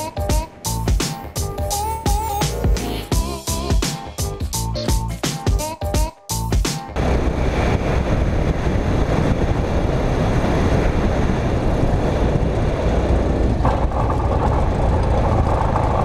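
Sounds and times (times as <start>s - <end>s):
hum: 7.0s - 16.0s
rushing air: 7.0s - 16.0s
small plane engine: 7.0s - 16.0s.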